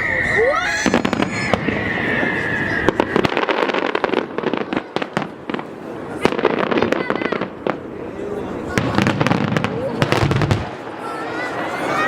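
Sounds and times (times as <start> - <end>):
high steady whistle: 0.0 - 3.5
fireworks bangs and crackles: 0.0 - 12.0.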